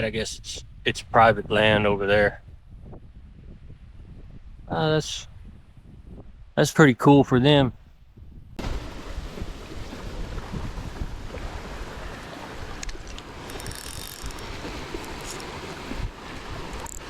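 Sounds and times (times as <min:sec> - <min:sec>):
wind buffeting microphone: 0:00.0 - 0:06.6, 0:07.6 - 0:17.0
faint clicks: 0:16.7 - 0:17.0.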